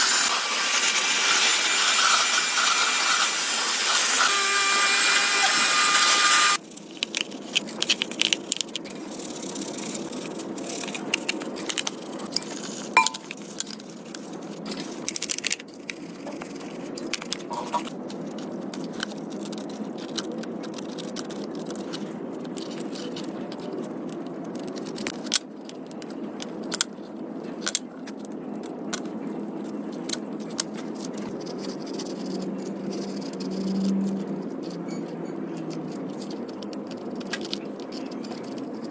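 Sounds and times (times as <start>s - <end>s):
loud rasping tool noise: 0.0s - 6.6s.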